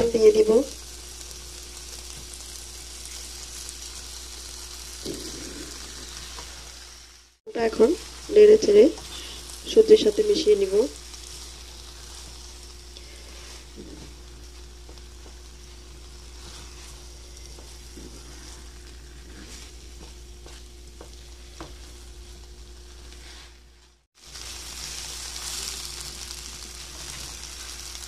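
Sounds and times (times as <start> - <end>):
rice sizzling in oil: 0.0 - 28.0
spatula scraping a wok: 16.1 - 19.9.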